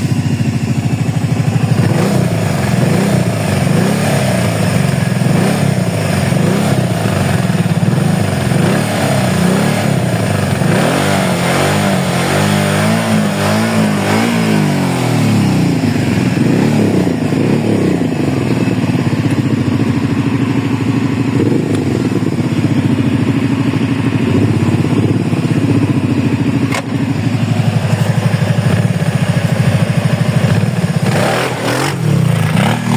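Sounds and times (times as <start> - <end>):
atv engine revving: 0.0 - 32.9
sharp click: 26.7 - 27.0.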